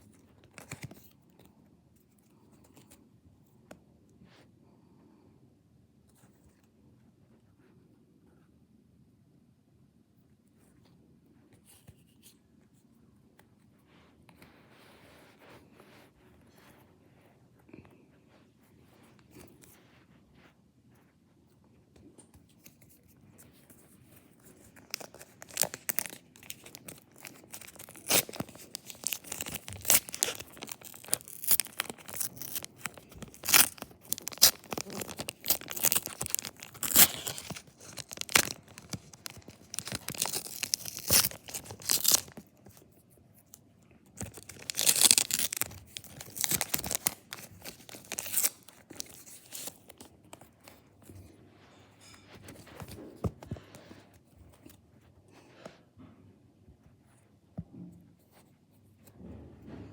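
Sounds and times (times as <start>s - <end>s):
card pack wrapper tearing and crinkling: 0.5s - 1.1s, 24.5s - 42.6s, 44.2s - 50.8s.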